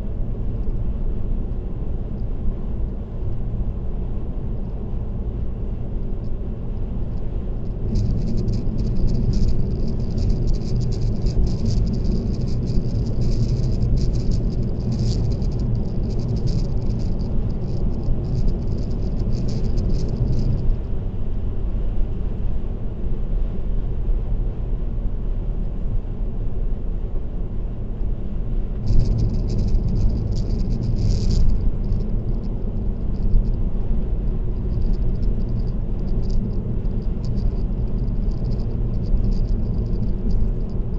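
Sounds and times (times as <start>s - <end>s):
car road and tyre rumble: 0.0s - 40.9s
fast high rattle: 7.6s - 20.8s, 28.8s - 40.9s.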